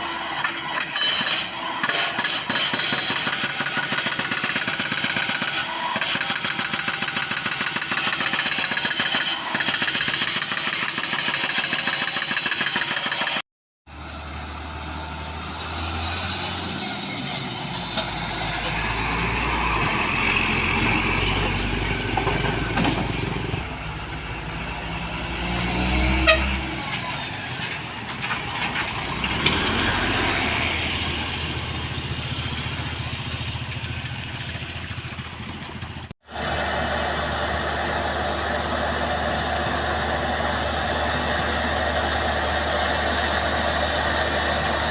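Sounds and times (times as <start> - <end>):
diesel machinery droning: 13.9 - 44.9.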